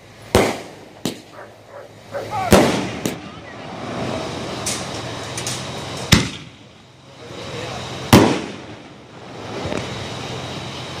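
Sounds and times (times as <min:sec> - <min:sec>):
aerial firework shells bursting: 0:00.3 - 0:01.4, 0:02.5 - 0:03.3, 0:03.9 - 0:06.6, 0:08.1 - 0:10.0.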